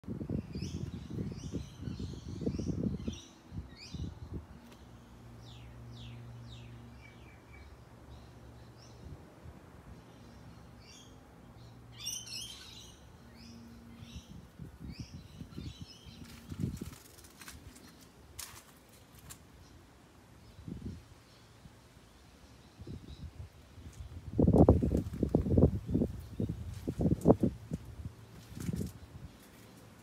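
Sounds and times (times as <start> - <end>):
small birds chirping: 10.0 - 30.0.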